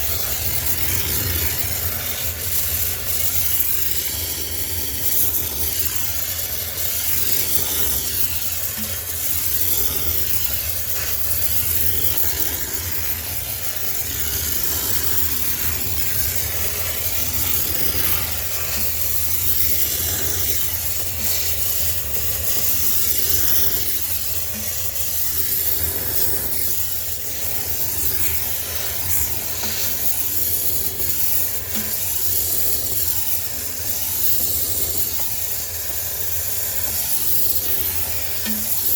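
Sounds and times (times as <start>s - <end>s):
steam cleaner hissing: 0.0s - 38.9s.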